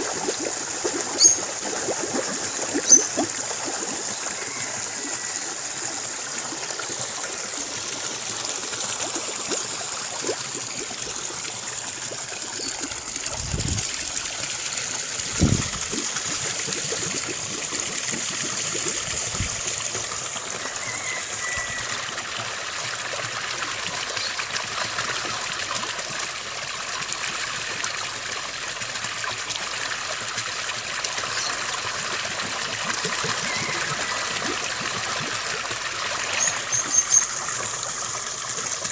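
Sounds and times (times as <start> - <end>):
stream trickling: 0.0 - 38.9
faint bird call: 20.6 - 22.1.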